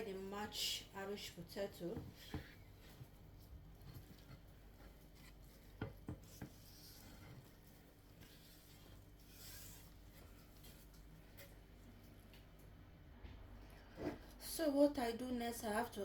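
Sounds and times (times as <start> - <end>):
food rubbing and scraping in bowl: 2.1 - 11.4.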